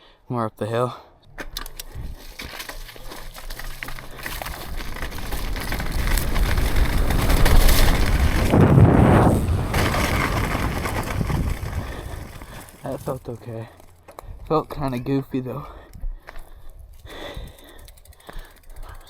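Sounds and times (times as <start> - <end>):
bike tyres rolling on dirt: 1.7 - 19.0
wind rushing over microphone: 4.4 - 12.8.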